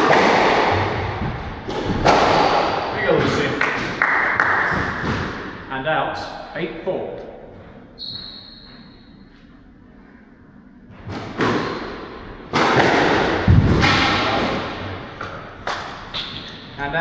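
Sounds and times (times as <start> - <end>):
squash racket strikes: 0.0 - 5.7, 10.9 - 16.7
faint high squeak: 8.0 - 9.3.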